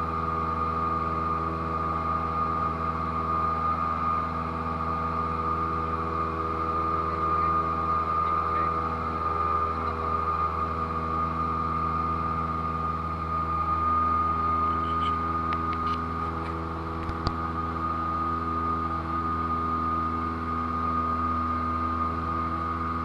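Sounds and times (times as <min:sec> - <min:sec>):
aircraft engine drone: 0:00.0 - 0:23.0
steady high tone: 0:14.3 - 0:16.8.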